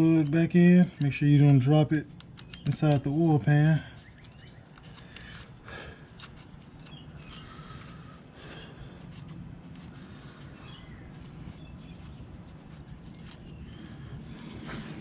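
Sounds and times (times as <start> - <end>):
low steady hum: 0.0 - 15.0
small metallic clicks and taps: 2.1 - 2.8.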